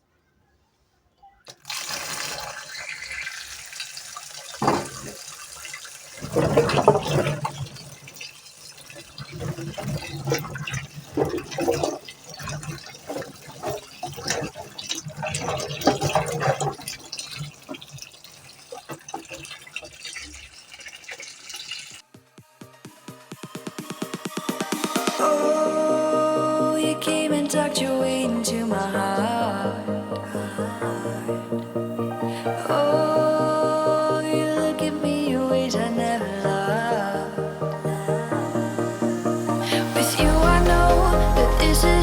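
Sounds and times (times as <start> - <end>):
splashing while washing produce: 1.5 - 22.0
running water: 1.5 - 22.1, 24.9 - 42.0.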